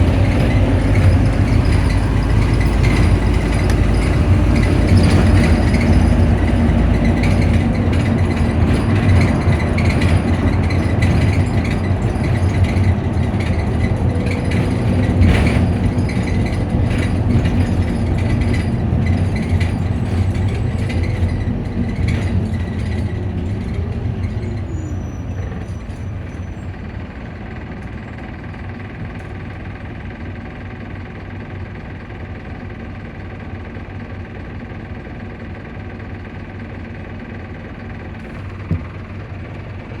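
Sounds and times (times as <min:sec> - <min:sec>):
bus engine running: 0:00.0 - 0:40.0
cooling fan running: 0:37.6 - 0:40.0.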